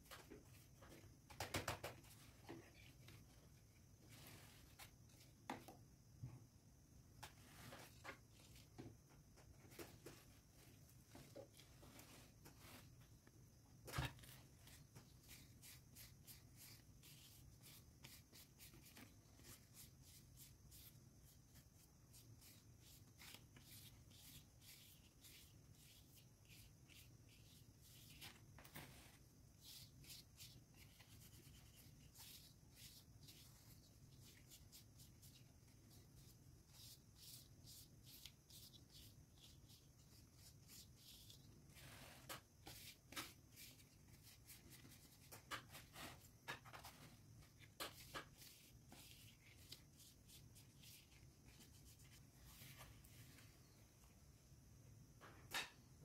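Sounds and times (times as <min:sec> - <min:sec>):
hands rubbing plant leaves: 0:14.2 - 0:47.0, 0:47.6 - 0:53.4.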